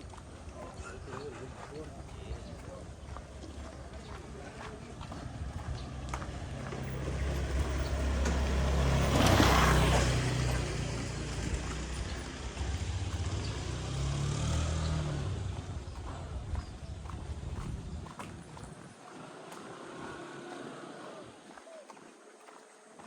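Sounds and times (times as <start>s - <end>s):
vehicle engine passing by: 0.0s - 21.8s.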